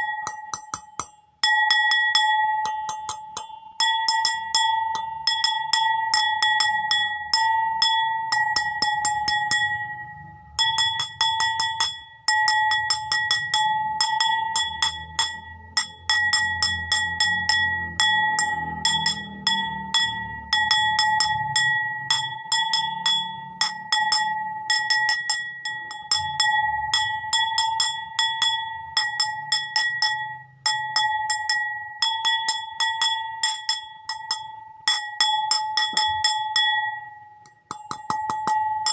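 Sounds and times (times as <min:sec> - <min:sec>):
bowl taps ringing: 0:30.9 - 0:38.9.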